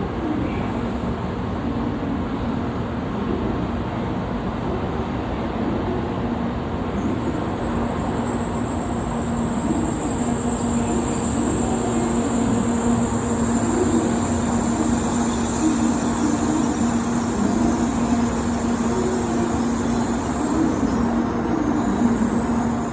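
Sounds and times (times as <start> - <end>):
train running hum: 0.0 - 22.9
high whine: 6.8 - 22.9.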